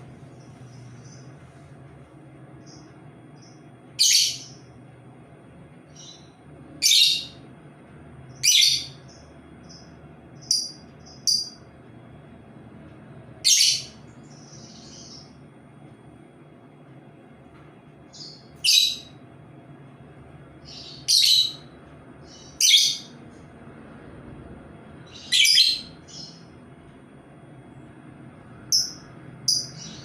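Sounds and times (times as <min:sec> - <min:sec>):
soft bird chirps: 0:00.0 - 0:01.9, 0:05.9 - 0:07.4, 0:13.4 - 0:15.4, 0:18.1 - 0:19.2, 0:20.6 - 0:23.2
bird calling loudly: 0:20.7 - 0:23.1, 0:25.1 - 0:26.4.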